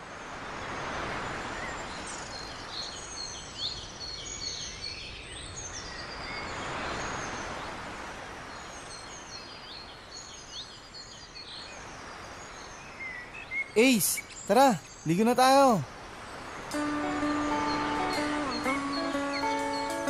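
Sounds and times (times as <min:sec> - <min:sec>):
small birds chirping: 0:08.5 - 0:20.0.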